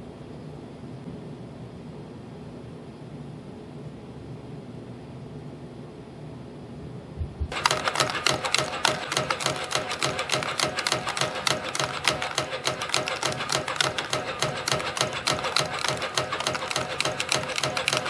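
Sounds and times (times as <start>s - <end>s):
rhythmic machine clicking: 7.5s - 18.0s.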